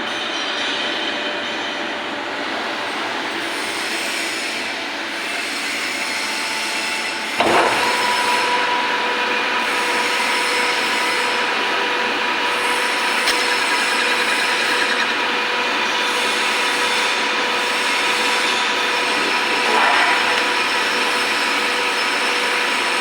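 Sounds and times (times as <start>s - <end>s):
lathe running: 7.2s - 23.0s
steady whine: 7.4s - 22.2s.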